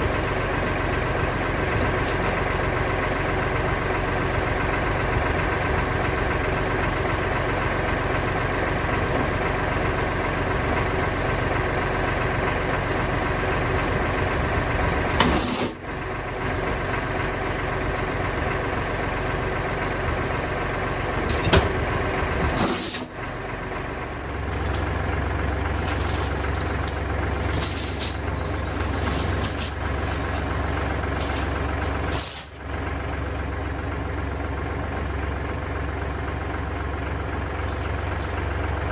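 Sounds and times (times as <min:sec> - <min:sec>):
tractor diesel engine running: 0:00.0 - 0:38.9
short metallic clanks: 0:13.6 - 0:16.0, 0:20.0 - 0:23.4, 0:24.3 - 0:32.8.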